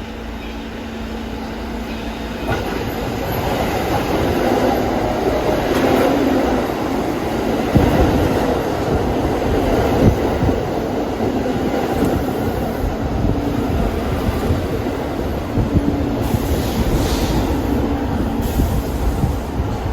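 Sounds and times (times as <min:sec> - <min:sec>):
subway train rumbling on rails: 0:00.0 - 0:19.9.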